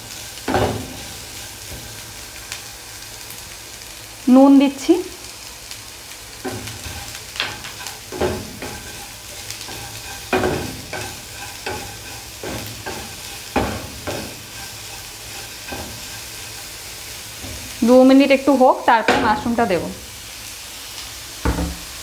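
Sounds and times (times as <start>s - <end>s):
vegetables sizzling in oil: 0.0s - 22.0s
spatula scraping a frying pan: 0.1s - 3.3s, 6.4s - 17.8s.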